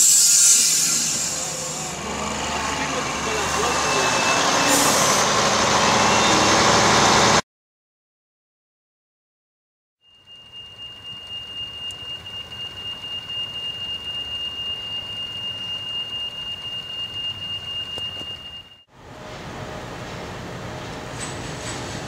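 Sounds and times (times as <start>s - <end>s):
high-pitched train squeal: 0.0s - 2.0s, 3.0s - 6.8s, 10.1s - 18.8s
low train rumble: 0.0s - 7.4s, 10.2s - 22.0s.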